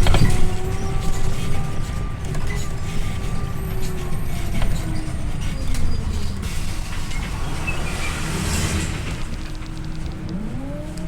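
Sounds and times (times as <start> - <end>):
bus drivetrain and road rumble: 0.0 - 11.0
bus drivetrain whine: 0.0 - 11.0
air hiss: 6.5 - 10.2.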